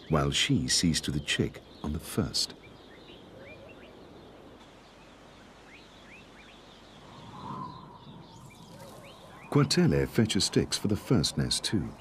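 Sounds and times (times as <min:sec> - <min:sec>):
faint bird chirps sliding upward: 0:07.0 - 0:09.6.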